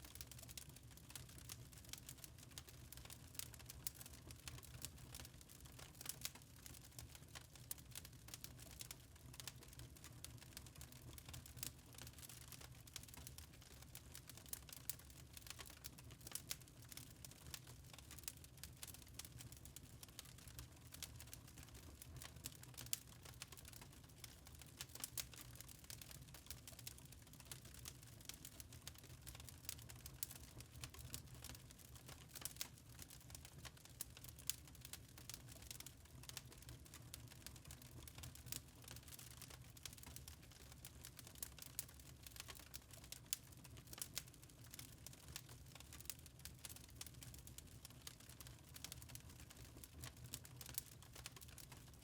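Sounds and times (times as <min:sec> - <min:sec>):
wood fire crackling: 0:00.0 - 0:52.0
fire pops and snaps: 0:11.0 - 0:51.9.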